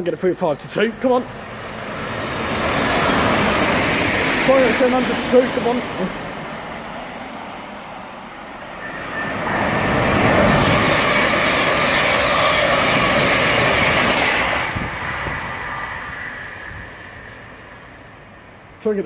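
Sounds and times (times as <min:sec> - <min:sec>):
train passing at speed: 0:00.0 - 0:19.0.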